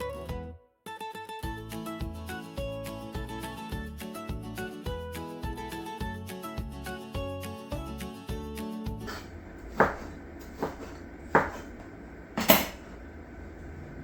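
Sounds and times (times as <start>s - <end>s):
background music: 0.0s - 9.1s
kitchenware knocks: 9.8s - 11.8s, 12.4s - 13.0s.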